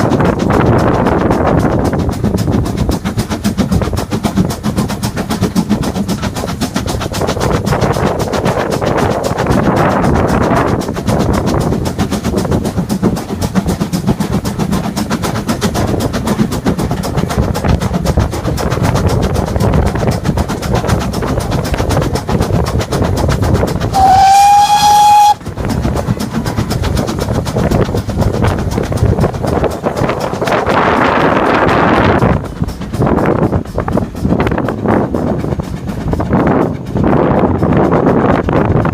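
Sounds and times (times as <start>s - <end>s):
steam train rumbling: 0.0s - 38.9s
steam train whistle blast: 23.9s - 25.4s.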